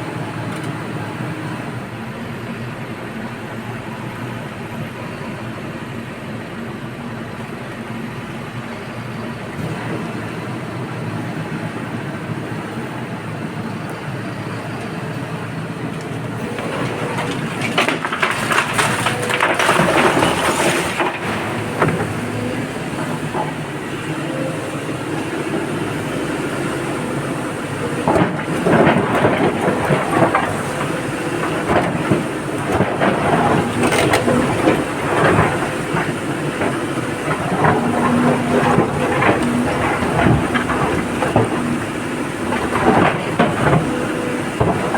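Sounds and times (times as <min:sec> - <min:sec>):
excavator engine running: 0:00.0 - 0:44.9
rock and earth clattering: 0:16.3 - 0:44.9.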